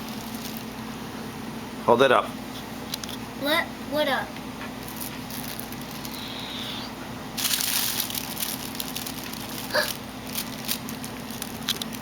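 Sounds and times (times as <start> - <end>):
scattered crackles: 7.4 - 12.0.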